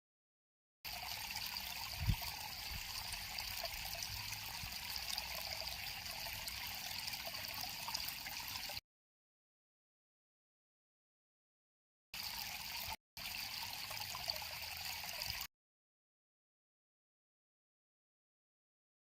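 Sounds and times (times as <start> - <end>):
river water flowing: 0.9 - 8.8.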